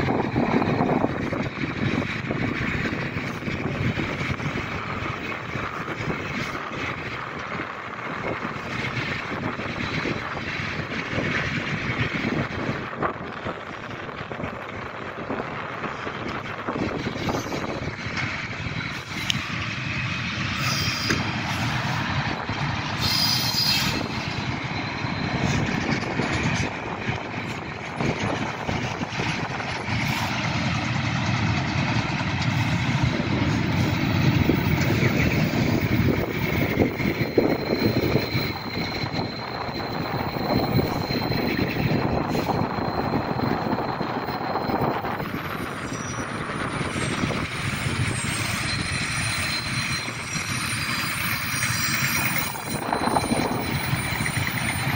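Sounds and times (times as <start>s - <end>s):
freight train rumbling: 0.0s - 54.9s.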